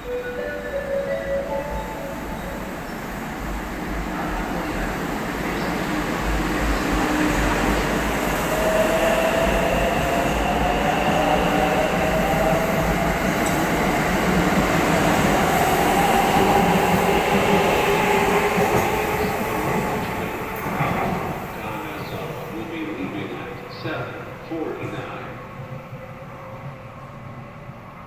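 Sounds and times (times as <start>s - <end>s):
train whining tones: 0.0s - 4.9s
train rumbling: 0.0s - 28.0s.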